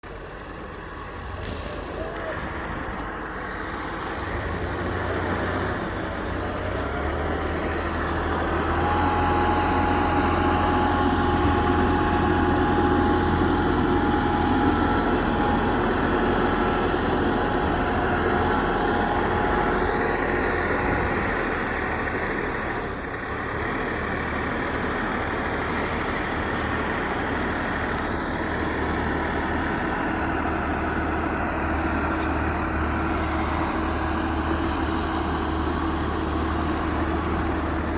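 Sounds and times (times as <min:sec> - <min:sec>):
tractor engines running: 0:00.0 - 0:37.9
steady whine: 0:00.6 - 0:23.0.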